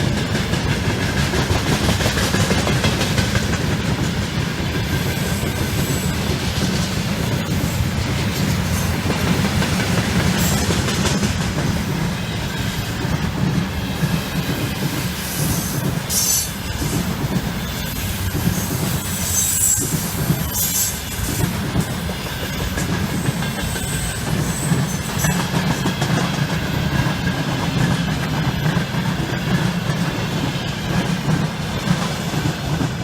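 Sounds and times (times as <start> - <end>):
freight train wheels rumbling: 0.0 - 33.0
high wheel squeals: 15.2 - 25.8.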